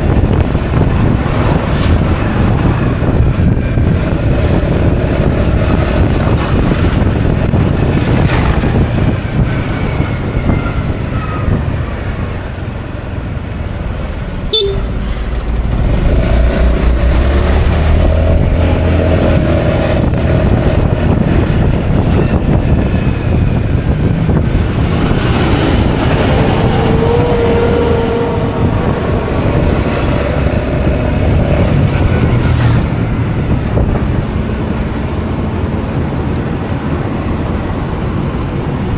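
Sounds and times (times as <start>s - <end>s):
scooter engine and road noise: 0.0s - 38.9s
wind rushing over microphone: 0.0s - 38.9s
held tone: 14.5s - 17.2s.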